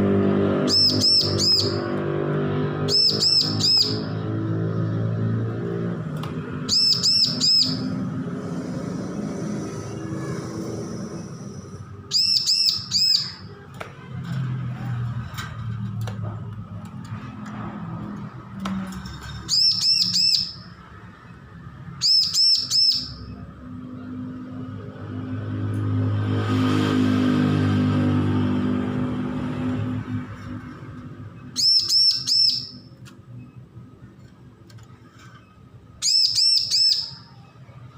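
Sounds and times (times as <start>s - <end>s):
bird chirping in quick bursts: 0.6s - 1.8s, 2.9s - 4.2s, 6.6s - 8.0s, 12.0s - 13.6s, 19.5s - 20.8s, 22.0s - 23.4s, 31.5s - 33.0s, 36.0s - 37.4s.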